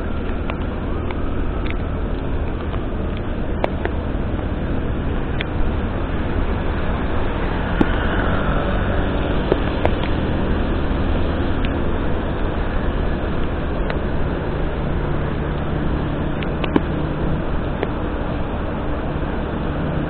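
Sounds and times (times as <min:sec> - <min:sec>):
tyres hissing on wet road: 0:00.0 - 0:20.0
vehicle engine drone: 0:00.0 - 0:20.0.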